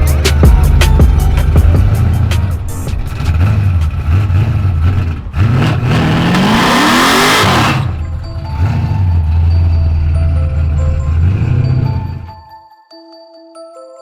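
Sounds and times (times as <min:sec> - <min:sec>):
car engine revving: 0:00.0 - 0:12.3
music with heavy bass beat: 0:00.0 - 0:12.4.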